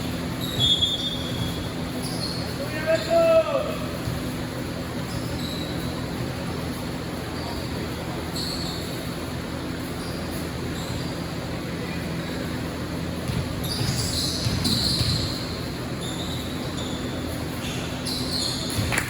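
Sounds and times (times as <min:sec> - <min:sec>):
hum of a large hall: 0:00.0 - 0:19.0
sneakers squeaking: 0:00.0 - 0:19.0
voices: 0:00.2 - 0:15.2
basketball bouncing: 0:13.2 - 0:15.7.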